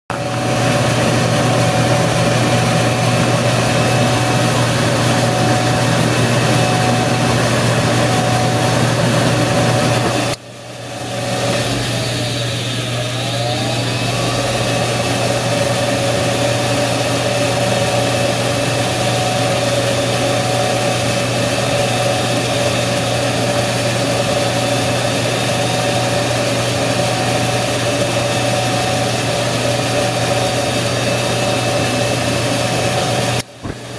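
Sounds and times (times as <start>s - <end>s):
furnace humming: 0.1s - 33.9s.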